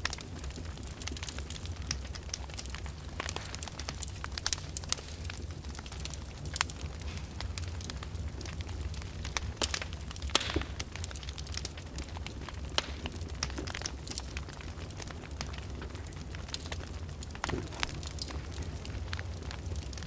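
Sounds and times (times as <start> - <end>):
open fire crackling: 0.0 - 20.0.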